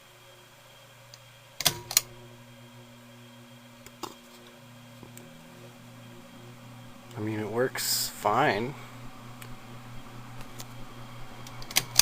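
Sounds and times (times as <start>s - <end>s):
ceiling fan motor hum: 0.0s - 12.0s
pull-chain switch clicking: 1.6s - 2.1s.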